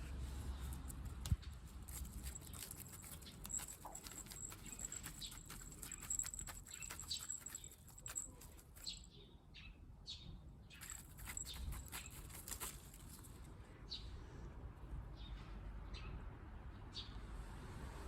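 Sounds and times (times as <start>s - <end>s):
small birds chirping faintly: 0.2s - 14.4s.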